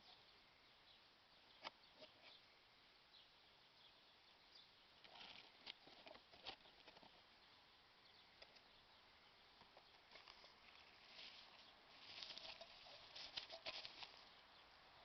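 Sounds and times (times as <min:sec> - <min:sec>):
light rustling: 0:09.6 - 0:14.4.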